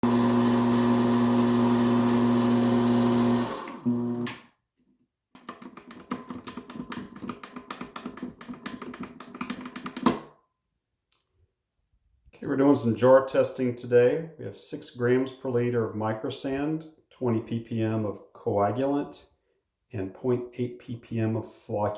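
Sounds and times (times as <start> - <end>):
electric stirrer motor humming: 0.0 - 4.4.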